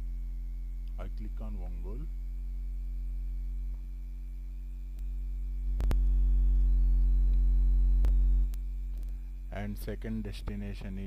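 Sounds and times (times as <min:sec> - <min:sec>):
electrical mains hum: 0:00.0 - 0:11.0
sharp clicks: 0:05.8 - 0:06.0.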